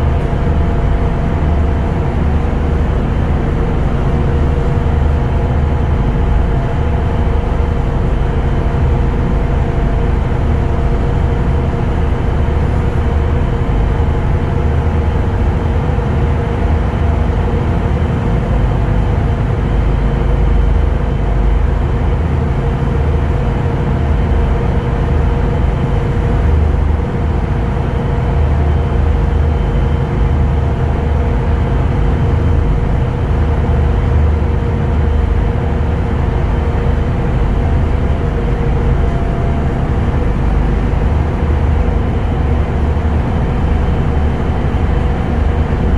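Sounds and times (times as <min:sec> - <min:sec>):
constant humming tones: 0:00.0 - 0:45.9
vehicle rumble and drone: 0:00.0 - 0:45.9.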